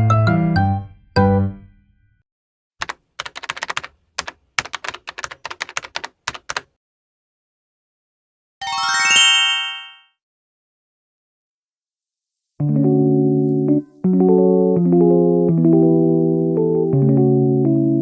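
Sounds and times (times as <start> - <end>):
keyboard typing clicks: 2.8 - 6.7.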